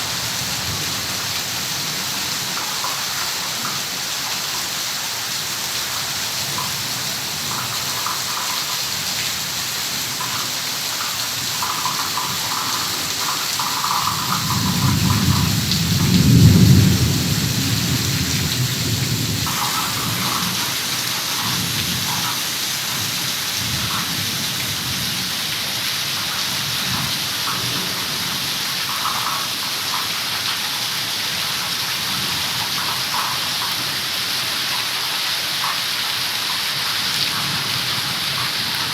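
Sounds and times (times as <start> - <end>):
heavy rain falling: 0.0 - 38.9
low rumble of thunder: 14.0 - 22.2.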